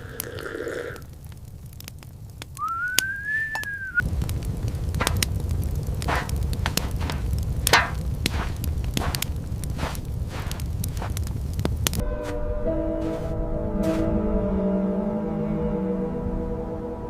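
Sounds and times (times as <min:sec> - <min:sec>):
low wind rumble: 0:00.0 - 0:17.0
whistled note sliding up: 0:02.6 - 0:04.0.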